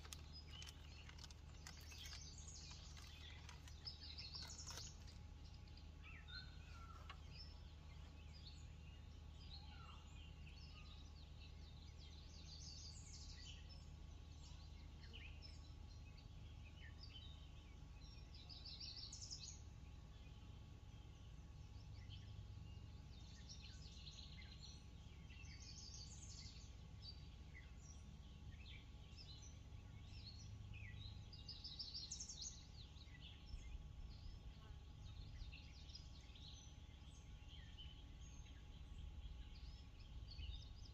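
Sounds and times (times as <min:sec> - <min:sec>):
birds chirping and calling: 0:00.0 - 0:08.4
low steady hum: 0:00.0 - 0:40.9.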